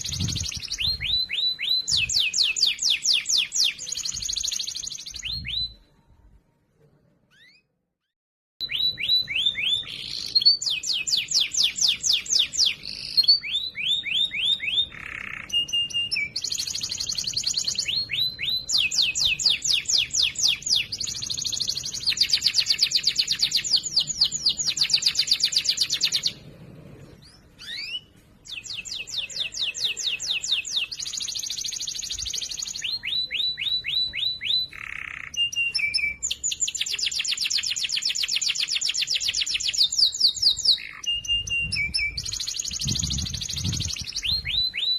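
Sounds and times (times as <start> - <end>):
canary singing trills: 0.0 - 5.9, 8.6 - 44.9.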